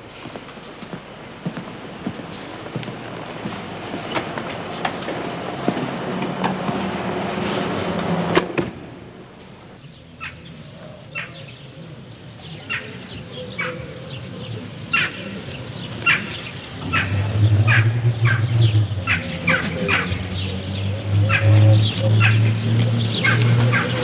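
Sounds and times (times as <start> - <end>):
birds calling: 9.5 - 24.0.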